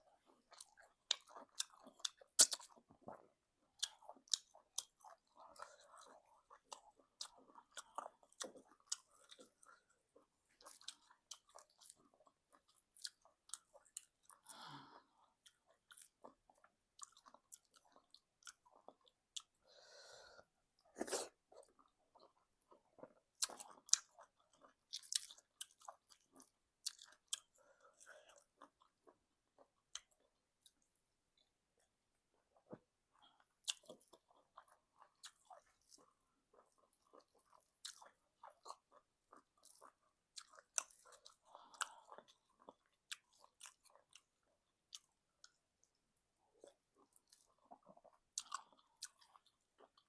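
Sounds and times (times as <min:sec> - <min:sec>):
wet chewing mouth clicks: 0:00.5 - 0:02.8.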